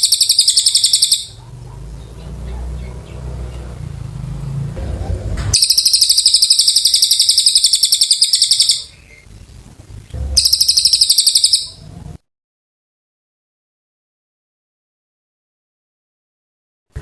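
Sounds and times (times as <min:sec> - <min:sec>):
songbird high-pitched trills: 0:00.0 - 0:04.3, 0:05.6 - 0:09.3, 0:10.2 - 0:12.0.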